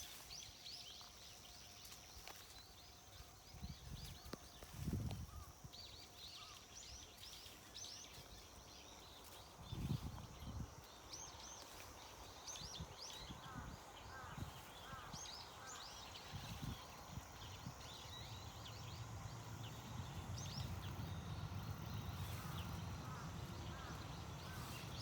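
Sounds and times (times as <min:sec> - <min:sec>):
small birds chirping: 0:00.0 - 0:25.0
low background rumble: 0:17.0 - 0:25.0.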